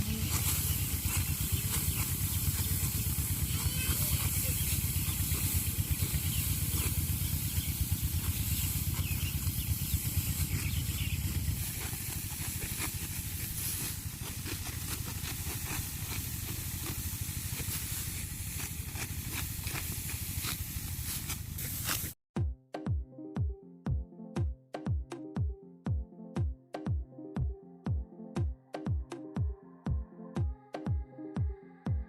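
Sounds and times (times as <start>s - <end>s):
harvesting machine engine rumble: 0.0s - 22.2s
electronic music with a beat: 22.4s - 32.0s.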